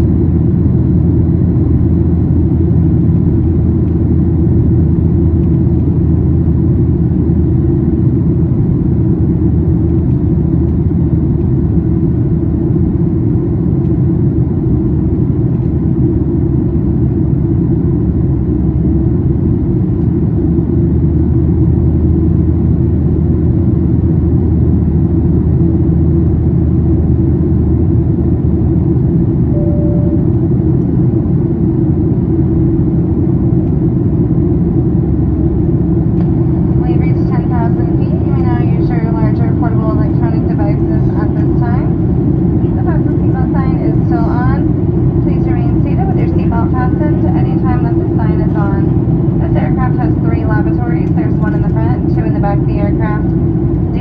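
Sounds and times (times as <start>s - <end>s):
airplane cabin drone: 0.0s - 54.0s
faint single tone: 29.5s - 30.5s.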